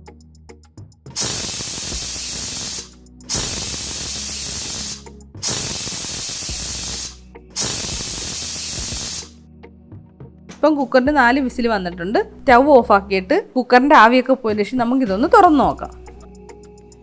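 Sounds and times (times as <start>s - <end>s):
pressure cooker whistling: 1.2s - 9.3s.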